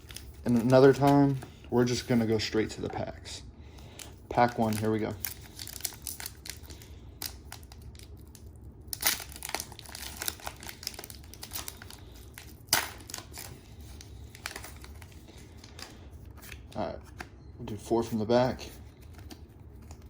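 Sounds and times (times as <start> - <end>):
foil wrapper crinkling and tearing: 0.0 - 1.4, 3.9 - 16.7.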